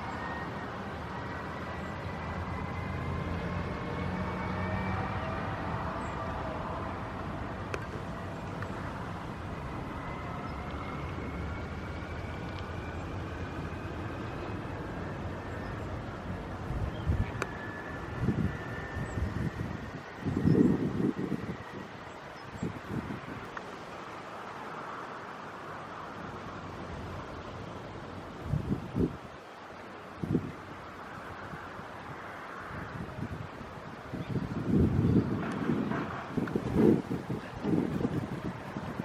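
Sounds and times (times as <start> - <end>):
engine drone: 0.0 - 21.6
wind on microphone: 0.0 - 23.8, 28.2 - 29.4, 30.1 - 39.0
faint whining tones: 0.0 - 24.9
wind rushing hiss: 16.0 - 39.0.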